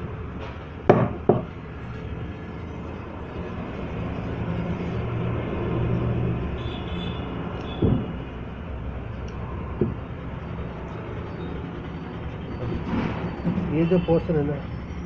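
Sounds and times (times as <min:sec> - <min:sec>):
low rumble of road traffic: 0:00.0 - 0:15.0.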